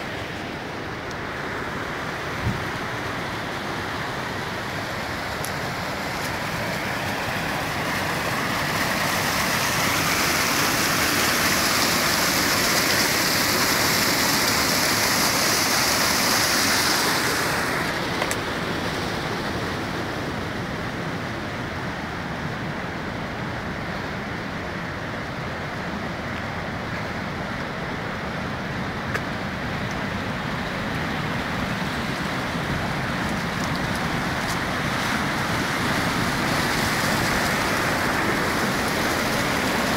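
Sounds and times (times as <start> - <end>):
floodwater rushing and splashing: 0.0 - 39.9.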